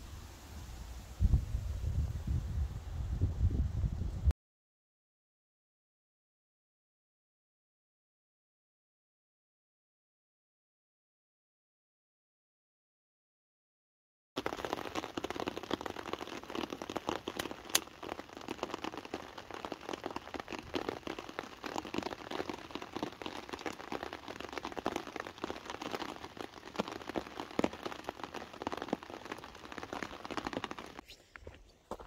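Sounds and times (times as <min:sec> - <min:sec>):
rain pattering on a tarp: 0:14.4 - 0:32.0.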